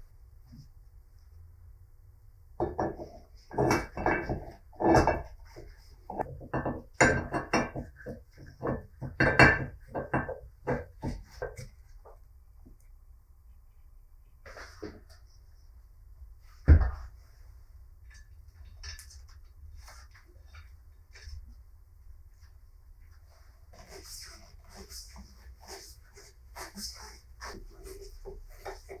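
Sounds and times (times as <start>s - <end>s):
metal vise parts knocking: 6.2s - 11.2s.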